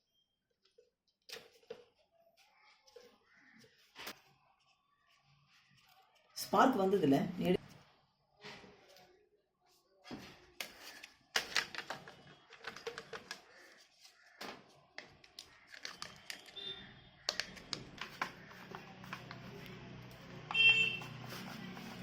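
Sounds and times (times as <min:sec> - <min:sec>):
plastic parts clicking and knocking: 0:10.6 - 0:13.8, 0:14.4 - 0:19.4.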